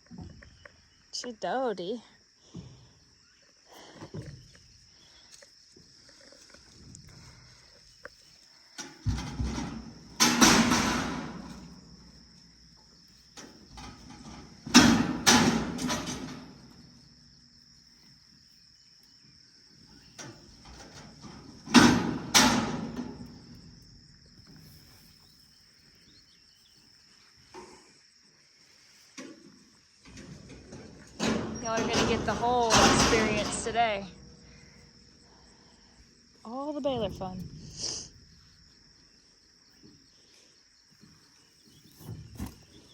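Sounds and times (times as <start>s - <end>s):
high insect drone: 0.0s - 42.9s
heavy clanking bangs on metal: 9.0s - 11.9s, 13.7s - 16.7s, 20.7s - 23.6s, 30.5s - 34.2s.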